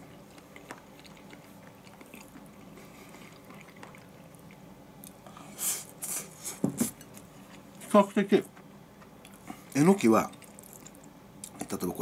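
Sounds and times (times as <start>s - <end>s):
quiet chewing: 0.0s - 5.5s, 9.1s - 11.7s.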